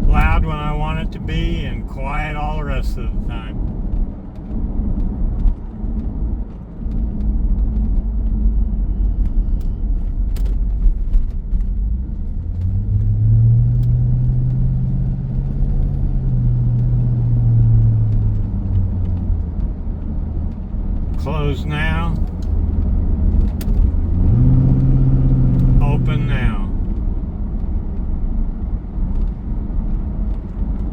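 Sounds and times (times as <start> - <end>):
car exhaust rumble: 0.0 - 30.9
deep exhaust drone: 21.0 - 27.7.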